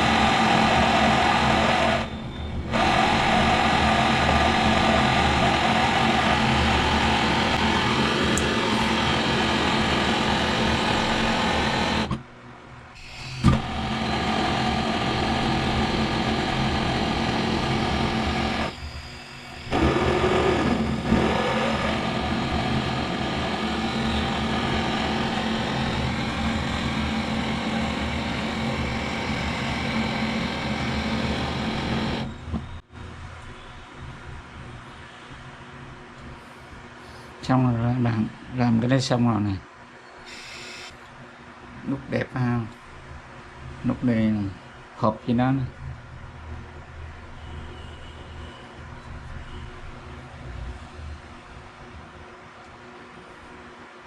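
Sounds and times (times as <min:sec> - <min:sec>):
gas torch flame hissing: 0:00.0 - 0:12.2, 0:13.0 - 0:18.7, 0:19.4 - 0:32.3
torch ignition click: 0:08.3 - 0:09.0.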